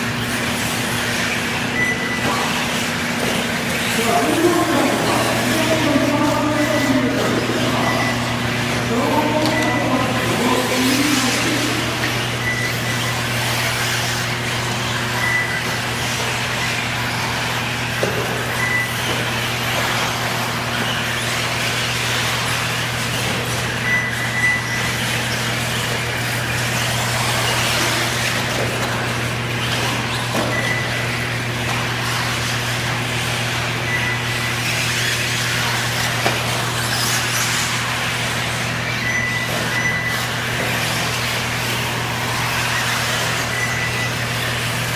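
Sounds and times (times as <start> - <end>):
rc car motors and tyres: 0.0 - 44.9
person speaking: 3.9 - 12.4
short high beeps: 6.6 - 8.3.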